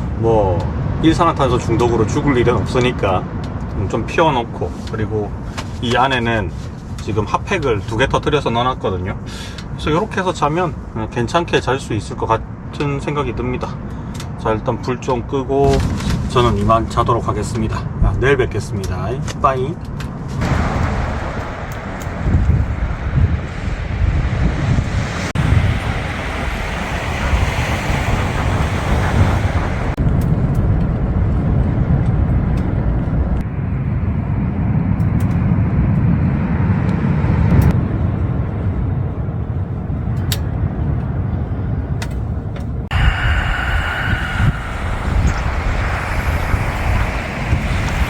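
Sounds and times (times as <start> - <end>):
wind buffeting microphone: 20.0 - 48.0
sea surf rumble: 20.4 - 33.5, 42.8 - 48.0.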